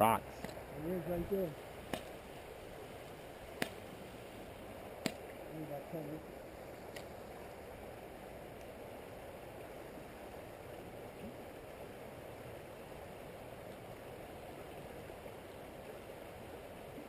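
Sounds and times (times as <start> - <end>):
stream water over rocks: 0.0 - 17.0.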